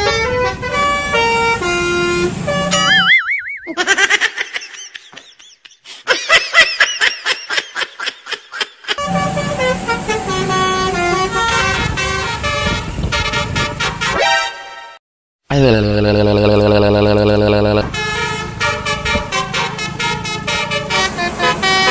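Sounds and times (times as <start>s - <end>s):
multi-tone musical horn: 0.0s - 3.0s, 9.0s - 15.0s, 17.2s - 21.9s.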